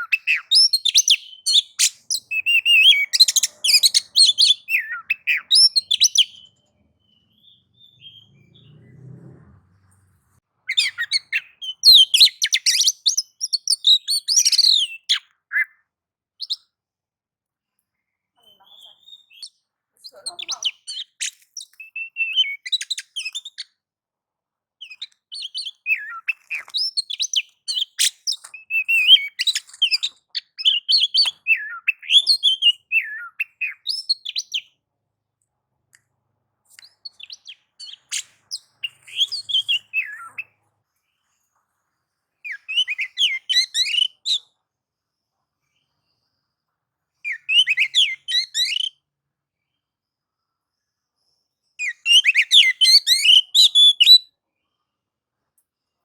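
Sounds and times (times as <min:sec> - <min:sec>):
bird singing fast chirps: 0:00.0 - 0:09.2, 0:10.7 - 0:15.7, 0:24.8 - 0:34.7, 0:36.8 - 0:40.6, 0:42.4 - 0:44.4, 0:47.2 - 0:49.0, 0:51.8 - 0:54.2.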